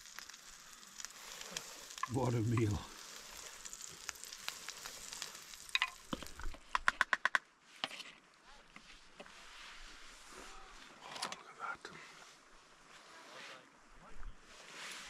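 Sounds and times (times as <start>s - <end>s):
food sizzling in a frying pan: 0.0s - 6.6s.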